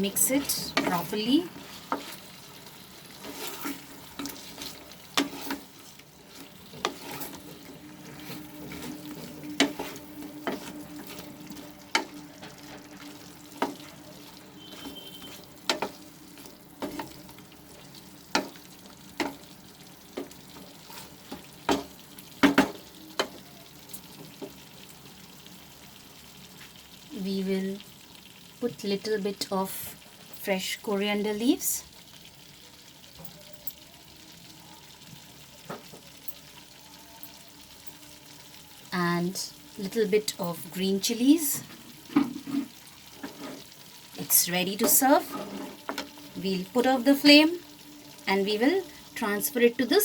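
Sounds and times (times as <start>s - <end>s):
soft sizzle: 0.0s - 50.0s
utensil stirring thick sauce: 0.1s - 23.4s, 44.8s - 48.2s.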